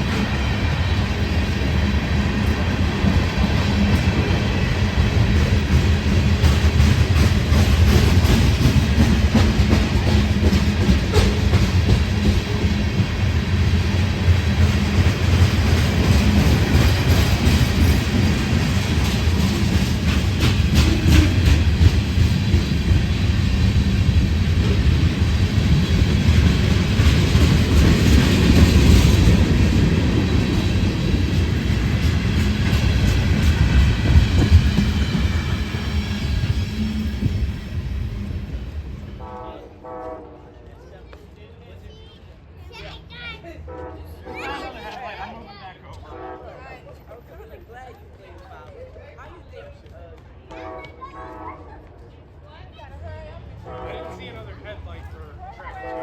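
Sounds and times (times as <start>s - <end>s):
train rumbling on rails: 0.0s - 56.0s
wheels clicking over rail joints: 14.1s - 36.4s.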